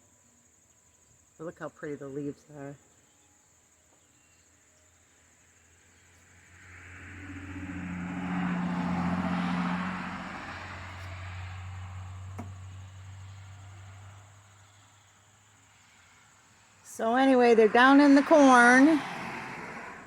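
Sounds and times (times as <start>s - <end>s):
car passing by: 6.0s - 20.0s.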